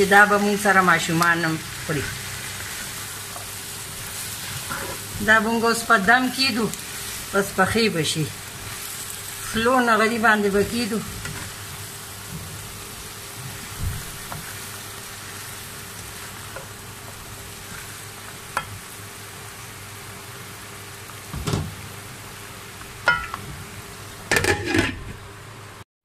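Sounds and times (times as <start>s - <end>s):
vegetables sizzling in oil: 0.0s - 25.8s
spatula scraping pan: 2.0s - 5.2s.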